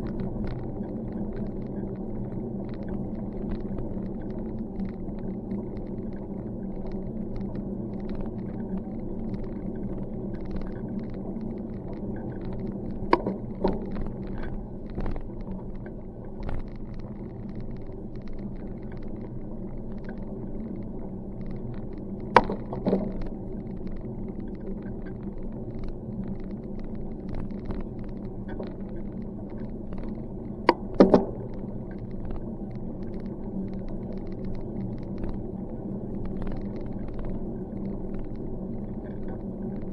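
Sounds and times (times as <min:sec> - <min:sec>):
bicycle rolling on paved road: 0:00.0 - 0:39.9.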